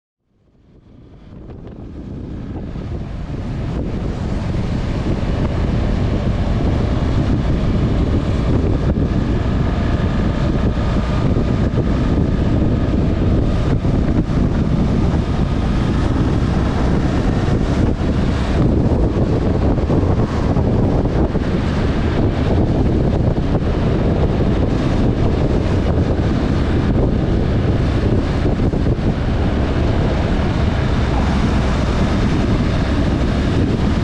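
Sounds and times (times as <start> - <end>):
motorcycle engine running: 0.3 - 34.0
wind buffeting microphone: 0.3 - 34.0.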